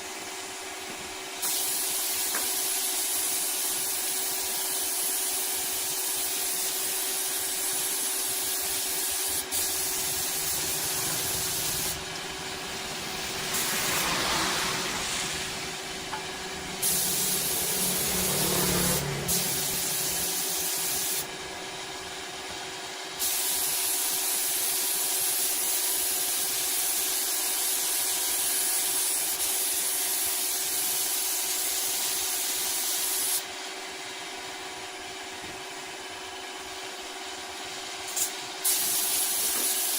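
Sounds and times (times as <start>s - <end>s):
steady hiss: 1.4s - 18.1s
machine hum: 9.5s - 21.9s
rough rubbing noise: 10.0s - 19.9s.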